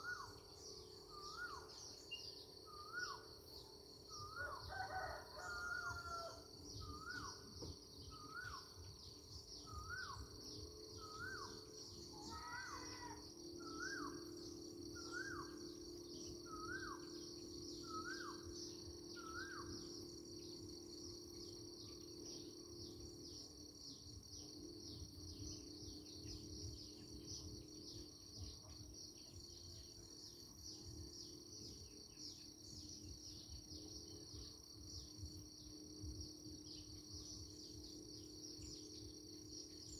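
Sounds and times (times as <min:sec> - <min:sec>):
insect chorus: 0:00.0 - 0:39.9
low steady hum: 0:05.7 - 0:39.9
bird rising call: 0:11.0 - 0:20.0.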